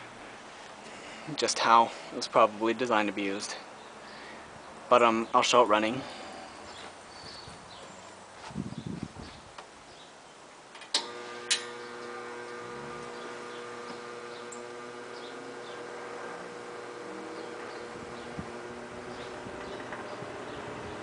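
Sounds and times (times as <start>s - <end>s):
fan motor humming: 11.0s - 21.0s.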